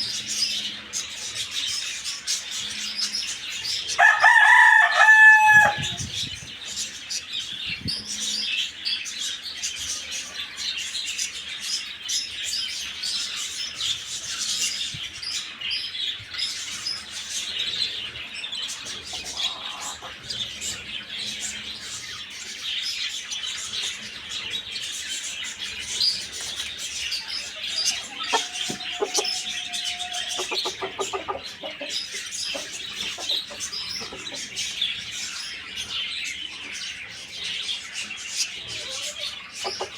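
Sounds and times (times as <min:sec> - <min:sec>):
small birds chirping: 0:00.0 - 0:39.9
rooster crowing: 0:04.0 - 0:06.0, 0:27.7 - 0:31.0.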